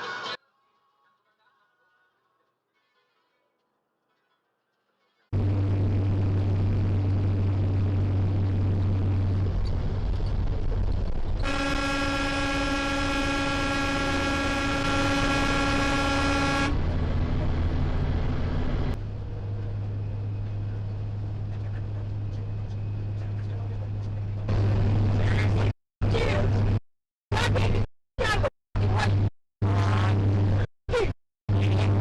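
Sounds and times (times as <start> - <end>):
engine and road drone: 5.4 - 26.8
long vehicle horn blast: 11.4 - 16.9.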